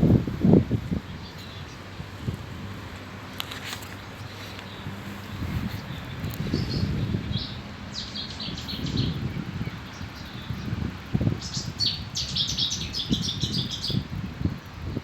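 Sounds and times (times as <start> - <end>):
low rumbling noise: 0.0 - 3.4
small birds chirping: 0.4 - 15.0.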